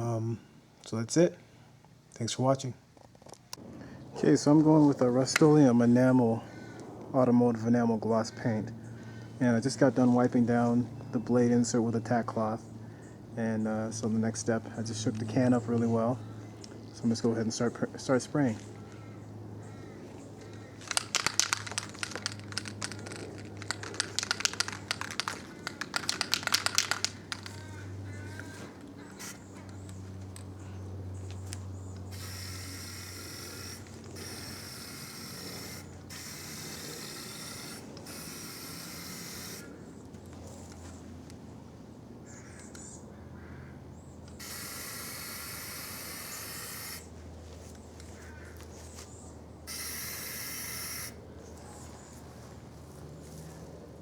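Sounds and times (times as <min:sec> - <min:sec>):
low steady hum: 0:00.0 - 0:54.0
mixing ball rattling in can: 0:20.8 - 0:27.6
spray paint hissing: 0:20.9 - 0:27.6, 0:32.1 - 0:39.7, 0:44.4 - 0:47.1, 0:49.7 - 0:51.2.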